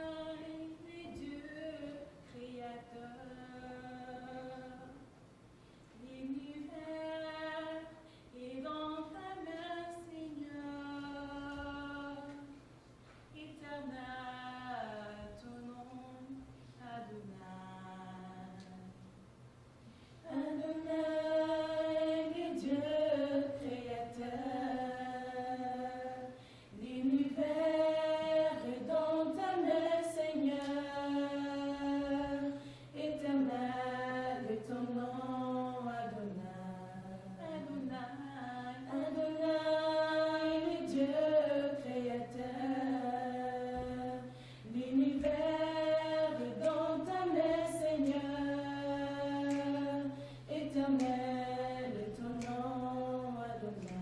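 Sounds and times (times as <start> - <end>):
person singing worship song: 0.0 - 5.1, 19.8 - 54.0
steady low hum: 0.0 - 54.0
singer breathing: 8.0 - 8.4, 19.8 - 20.3, 26.3 - 26.8, 32.6 - 33.0, 44.3 - 44.7, 50.1 - 50.5.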